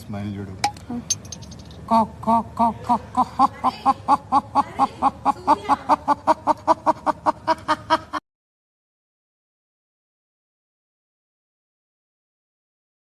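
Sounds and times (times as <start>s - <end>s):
person making laugh-like syllables: 2.6s - 8.2s.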